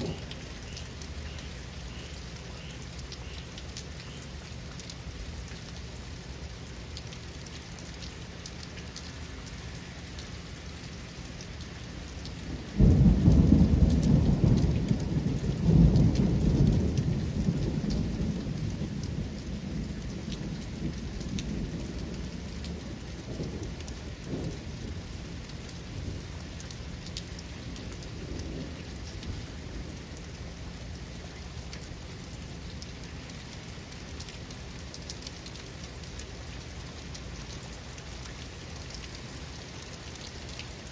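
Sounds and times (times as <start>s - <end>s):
thunder rumble: 0.0s - 0.6s, 12.5s - 26.3s
steady rain: 0.0s - 40.9s.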